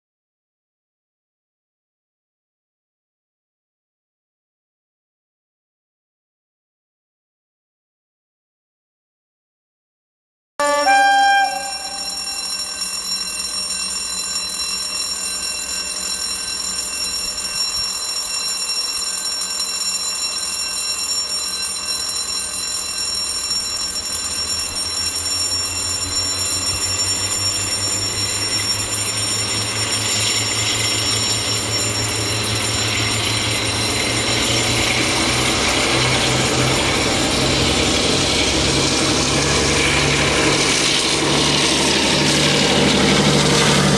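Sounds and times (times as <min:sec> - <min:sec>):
high-pitched turbocharger whistle: 0:10.6 - 0:13.0
locomotive engine running: 0:25.3 - 0:43.9.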